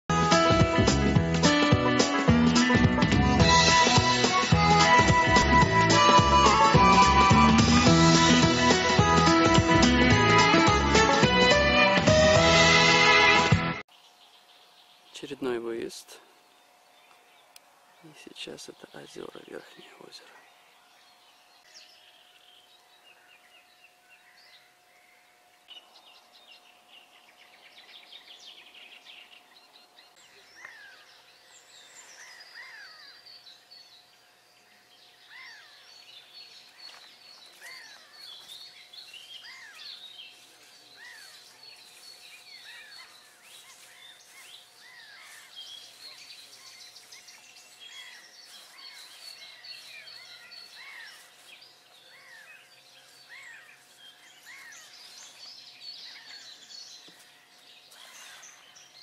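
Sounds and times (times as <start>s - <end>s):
songbirds chirping and trilling: 13.9s - 59.0s.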